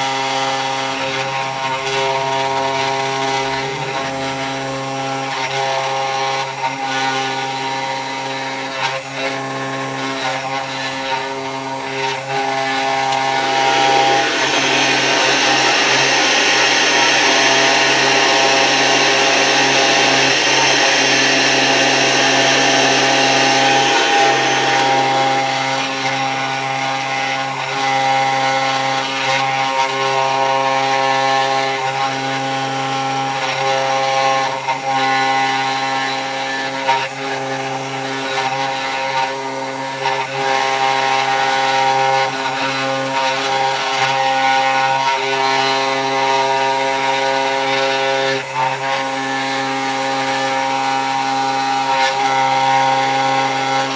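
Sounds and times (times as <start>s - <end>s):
router spindle whine: 12.0s - 26.8s
hiss of bit cutting wood: 12.8s - 26.0s.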